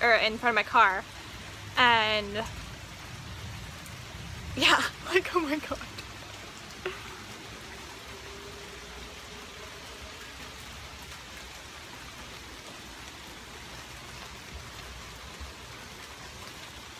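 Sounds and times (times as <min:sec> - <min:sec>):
heavy rain falling: 0:00.0 - 0:16.9.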